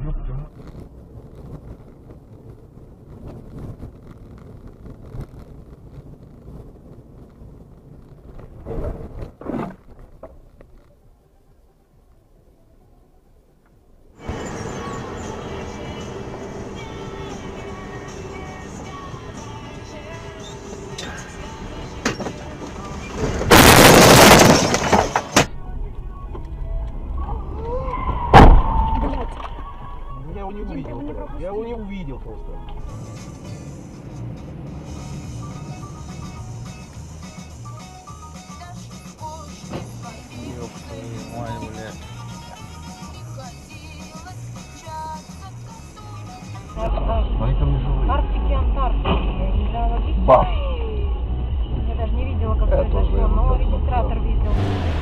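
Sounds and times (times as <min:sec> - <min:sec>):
car road and wind rumble: 0:00.0 - 0:55.0
car crash: 0:21.0 - 0:30.3
sharp bang: 0:28.3 - 0:28.9.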